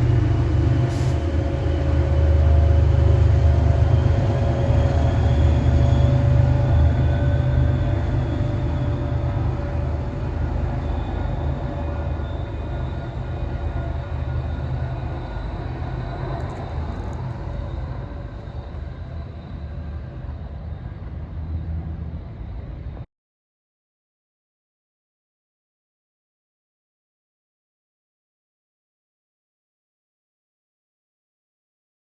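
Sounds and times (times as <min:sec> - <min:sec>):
train rumbling on rails: 0:00.0 - 0:23.1.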